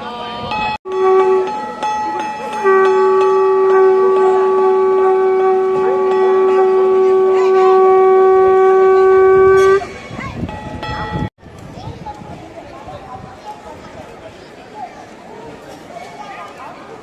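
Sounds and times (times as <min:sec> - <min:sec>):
steady horn-like note: 0:00.9 - 0:09.9.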